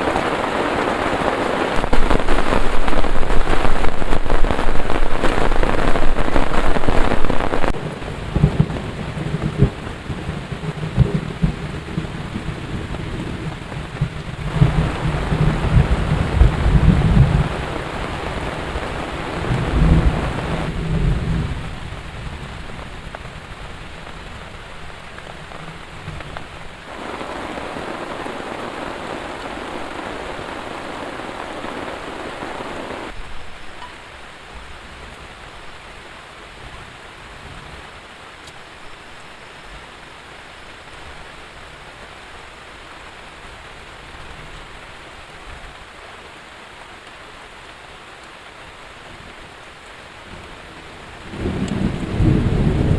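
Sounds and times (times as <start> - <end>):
heavy rain falling: 0.0 - 52.9
low rumble of thunder: 1.7 - 32.1, 51.2 - 52.9.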